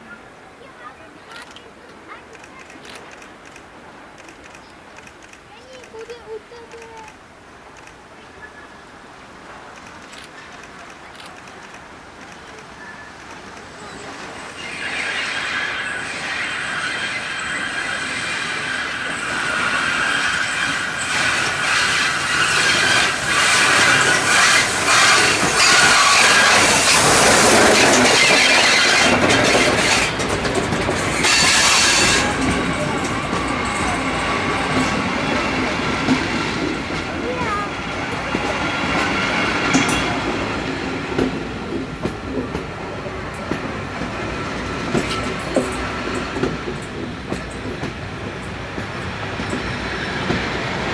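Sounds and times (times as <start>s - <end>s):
train wheels squealing on rails: 12.6s - 50.9s.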